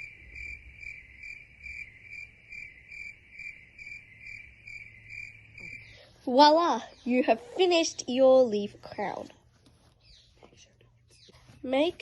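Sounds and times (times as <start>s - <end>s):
insect chirping: 0.0s - 7.2s.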